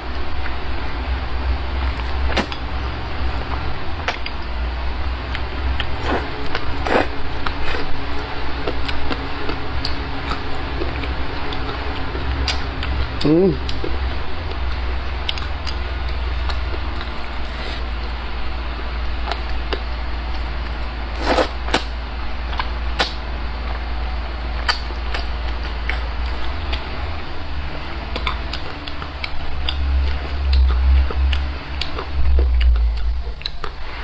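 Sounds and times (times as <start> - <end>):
steady low hum: 0.0 - 34.0
slurping rustle: 16.1 - 18.2, 21.1 - 21.9.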